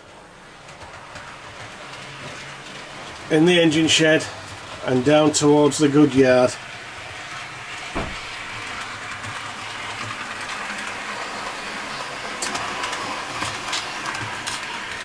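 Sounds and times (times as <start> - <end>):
model train wheels on rail: 0.0 - 15.0
low thump: 8.0 - 8.2.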